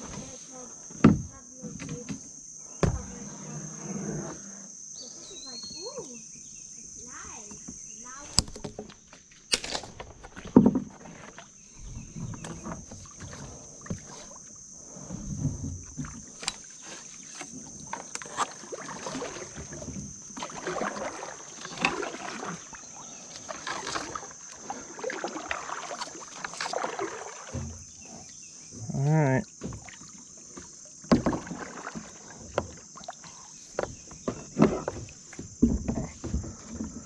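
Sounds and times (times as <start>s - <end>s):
insect buzz: 0.0s - 37.0s
paddle splashing in water: 7.4s - 37.0s.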